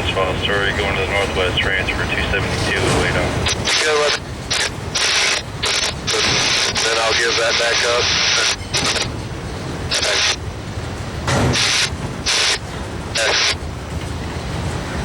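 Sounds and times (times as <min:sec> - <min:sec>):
radio static bursts: 0:00.2 - 0:09.1, 0:09.9 - 0:10.4, 0:11.3 - 0:13.6.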